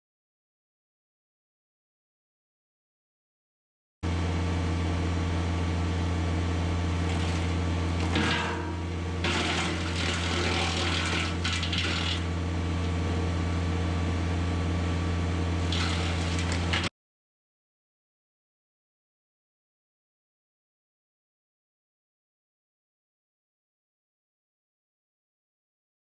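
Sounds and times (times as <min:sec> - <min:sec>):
wood chipper rushing and crackling: 0:05.9 - 0:13.7, 0:15.4 - 0:16.9.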